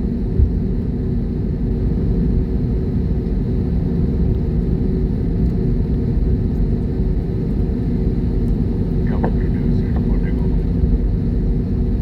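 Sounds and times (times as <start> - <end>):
jet airliner engines rumbling: 0.0 - 12.0
faint steady hum: 8.1 - 11.1.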